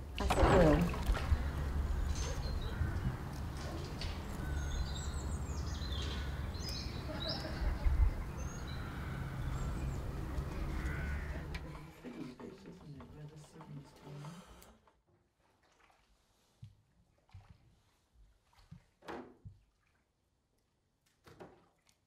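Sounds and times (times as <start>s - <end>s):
small birds chirping: 1.3s - 11.7s.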